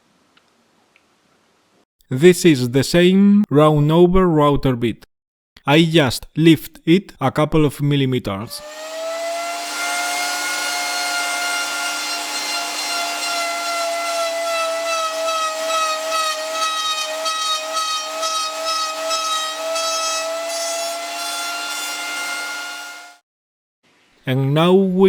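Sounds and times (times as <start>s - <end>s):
router motor whining: 8.5s - 23.2s.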